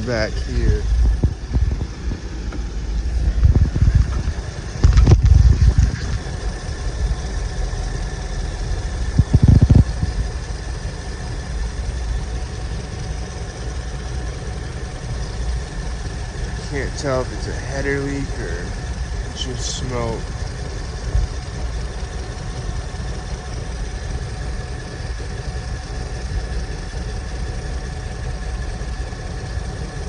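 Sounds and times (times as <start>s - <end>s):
truck engine idling: 0.0s - 30.0s
loud low thumps: 0.7s - 6.3s.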